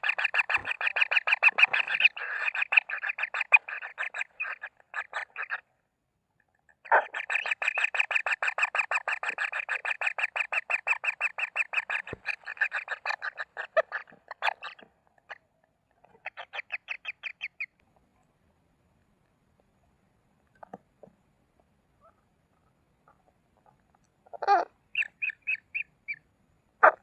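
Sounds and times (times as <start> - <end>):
kingfisher rattling call: 0.0 - 5.6.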